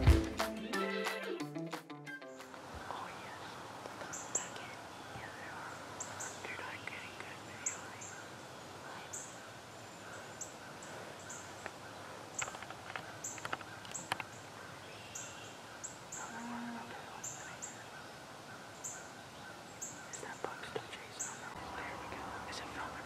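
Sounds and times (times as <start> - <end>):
small birds calling: 2.7 - 23.0
sharp clicks and rustles: 12.4 - 14.4.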